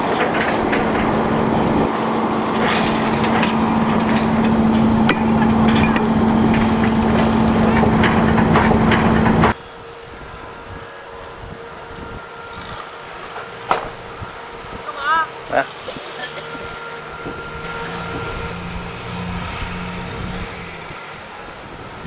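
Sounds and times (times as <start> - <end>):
clatter of sharp knocks: 0.0 - 9.6
train running close by: 0.0 - 22.0.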